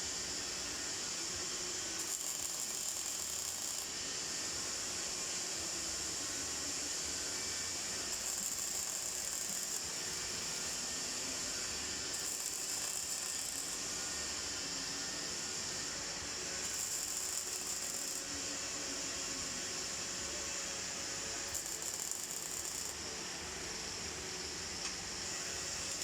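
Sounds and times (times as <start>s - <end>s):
welding arc crackling: 2.0s - 3.9s, 8.1s - 9.9s, 12.1s - 13.8s, 16.6s - 18.2s, 21.5s - 23.0s, 25.7s - 26.0s.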